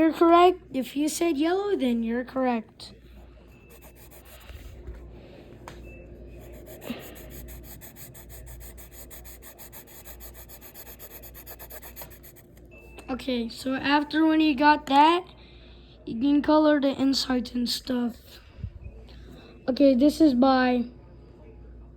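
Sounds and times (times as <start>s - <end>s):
colouring tool rubbing on paper: 3.6s - 4.8s, 6.4s - 12.6s.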